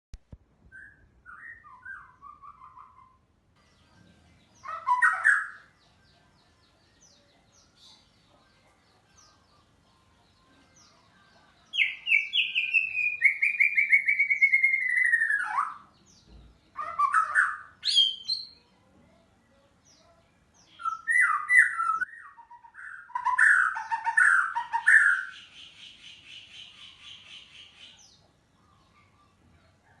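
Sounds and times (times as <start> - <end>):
bird singing whistled phrases: 0.7 - 3.2, 11.8 - 15.8, 17.0 - 18.6, 20.8 - 25.4.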